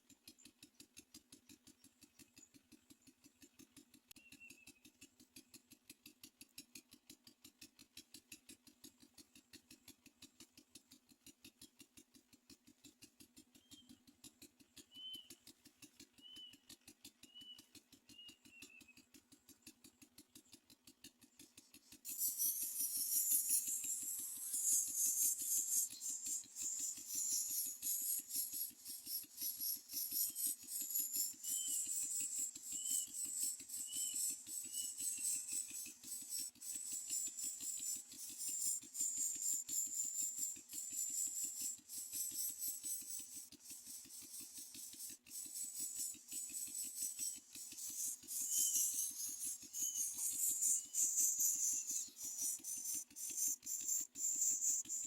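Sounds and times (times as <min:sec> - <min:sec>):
faint bird chirps: 0:04.1 - 0:04.9, 0:13.5 - 0:14.0, 0:14.8 - 0:15.5, 0:16.2 - 0:19.0, 0:21.6 - 0:55.0
high-pitched insect chorus: 0:22.1 - 0:33.2, 0:45.6 - 0:53.0.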